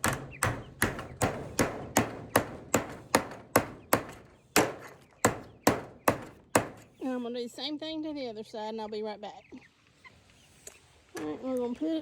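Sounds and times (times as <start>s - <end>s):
hammer beating metal hinge: 0.0s - 6.9s.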